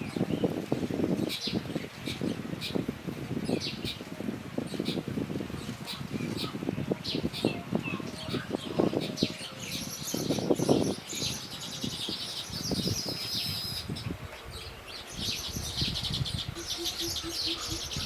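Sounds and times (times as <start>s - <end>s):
small birds chirping: 5.6s - 18.0s.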